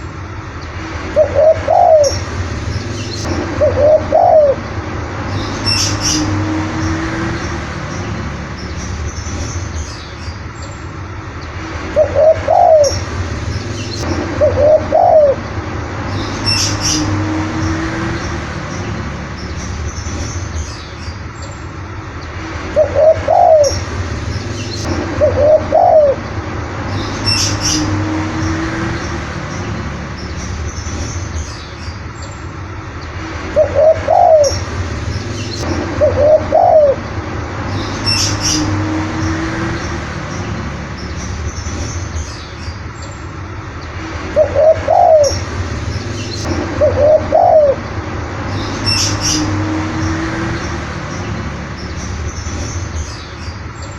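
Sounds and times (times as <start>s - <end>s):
dove cooing: 1.2s - 2.2s, 3.2s - 4.6s, 12.0s - 13.0s, 14.4s - 15.4s, 22.8s - 23.8s, 25.2s - 26.2s, 33.6s - 34.6s, 36.0s - 37.0s, 44.4s - 45.4s, 46.8s - 47.8s.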